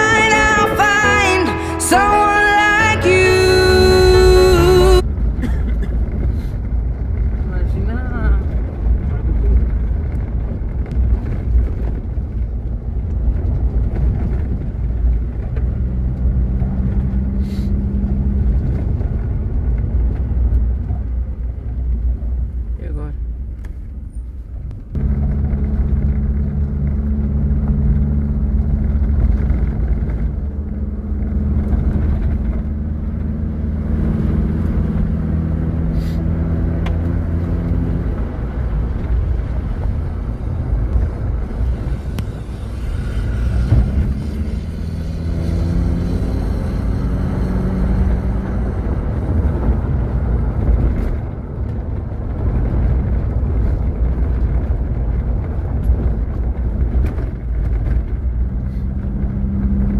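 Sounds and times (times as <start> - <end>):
off-road vehicle engine revving: 25.0 - 59.9.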